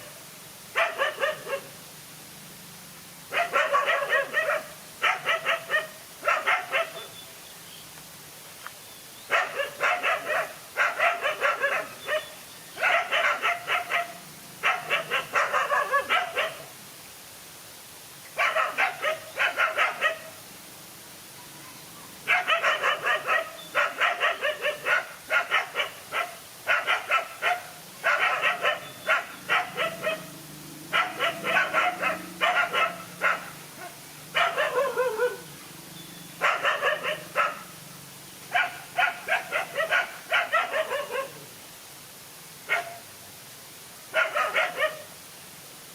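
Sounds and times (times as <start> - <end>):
dogs barking and yapping: 0.7 - 1.8, 3.3 - 7.2, 9.3 - 16.7, 18.4 - 20.4, 22.2 - 35.6, 36.4 - 37.8, 38.5 - 41.5, 42.7 - 43.0, 44.1 - 45.1.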